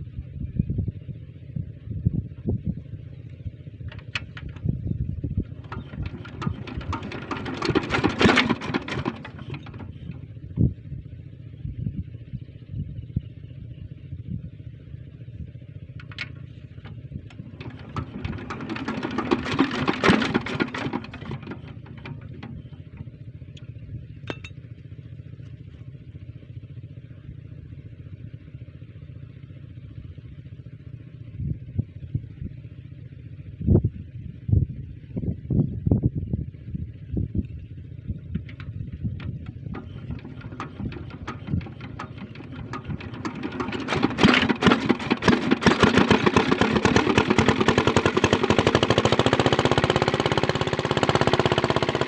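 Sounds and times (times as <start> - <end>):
diesel engine driving water pump: 3.2 - 11.6, 15.0 - 25.8, 37.6 - 52.0.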